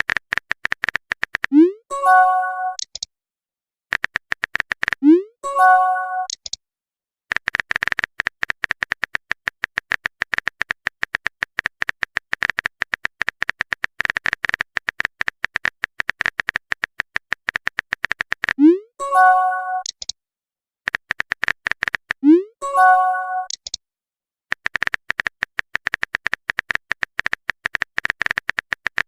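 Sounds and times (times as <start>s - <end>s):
rising pop and chime: 1.5s - 2.8s, 5.1s - 6.3s, 22.4s - 23.6s.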